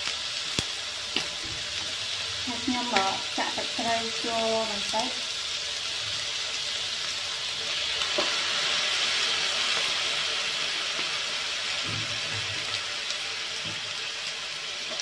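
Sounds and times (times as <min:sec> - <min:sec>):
pork frying in hot fat: 0:00.0 - 0:15.0.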